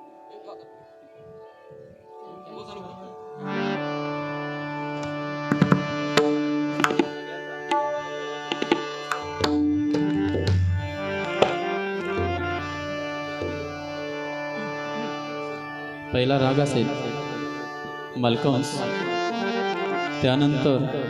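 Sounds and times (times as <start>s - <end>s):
held melodic notes: 0.0s - 21.0s
tabla strokes: 5.5s - 11.6s.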